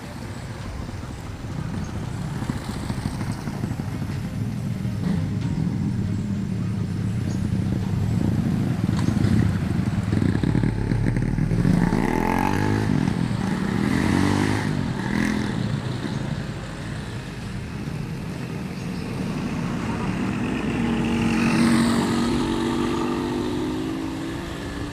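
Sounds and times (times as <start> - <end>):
vehicle engine revving: 8.0 - 16.0, 19.0 - 24.9.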